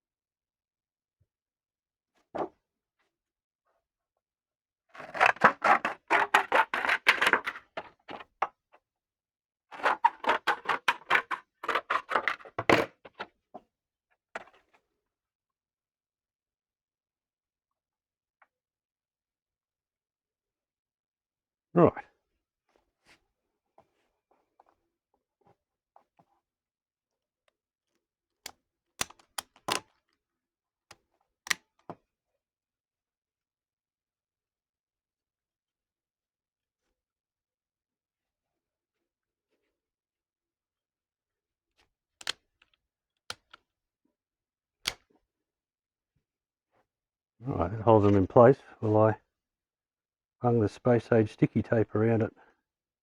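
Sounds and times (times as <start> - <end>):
battery cells clicking and knocking: 29.0 - 29.9, 42.2 - 43.6.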